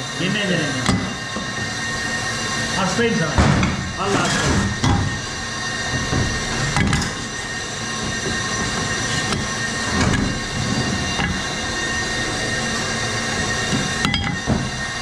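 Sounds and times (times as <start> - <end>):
engine with high-pitched squeal: 0.0 - 15.0.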